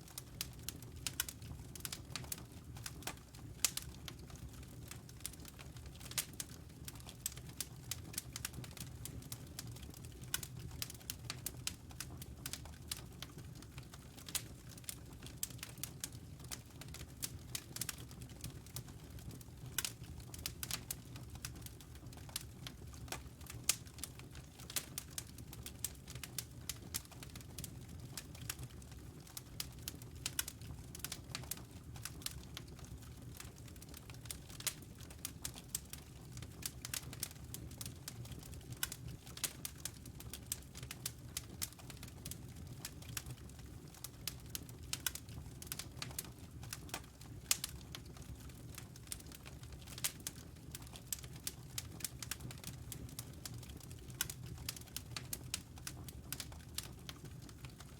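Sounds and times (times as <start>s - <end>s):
low rumble of burning fire: 0.0s - 57.9s
wood fire crackling and popping: 0.0s - 57.9s.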